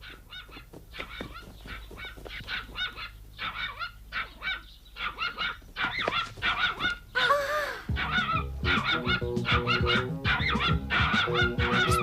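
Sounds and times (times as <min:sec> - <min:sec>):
cartoon honking animal cries: 0:07.2 - 0:12.0.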